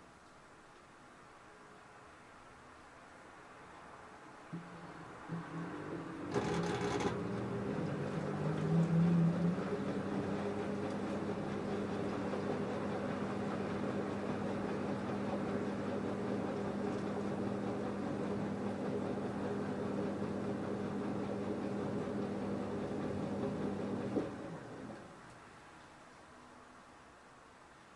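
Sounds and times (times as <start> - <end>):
washing machine motor hum: 4.5 - 25.3.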